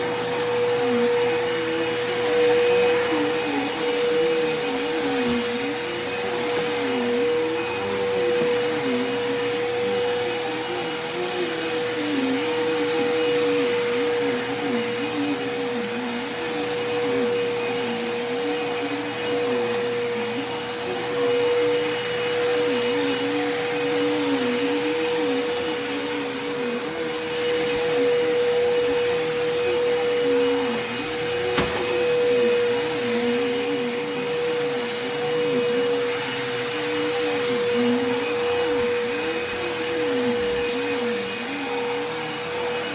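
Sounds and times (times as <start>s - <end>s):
vacuum cleaner running: 0.0s - 42.9s.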